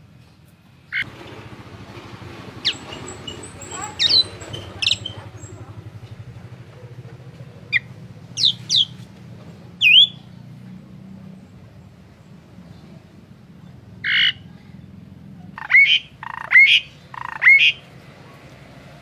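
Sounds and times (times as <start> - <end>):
songbird whistled calls: 2.6 - 5.5, 7.7 - 9.0, 9.8 - 10.3, 15.6 - 17.8.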